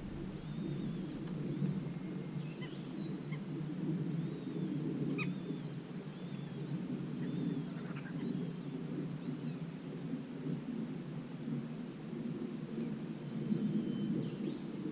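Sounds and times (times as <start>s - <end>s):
small birds calling: 0.0s - 3.5s, 4.1s - 9.6s
low background noise: 0.0s - 14.9s.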